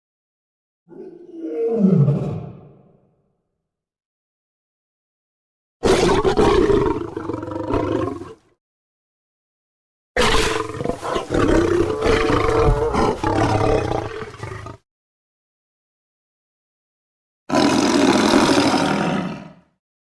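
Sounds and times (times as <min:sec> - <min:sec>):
lion roaring: 0:00.9 - 0:03.0, 0:05.8 - 0:08.4, 0:10.2 - 0:14.8, 0:17.5 - 0:19.6.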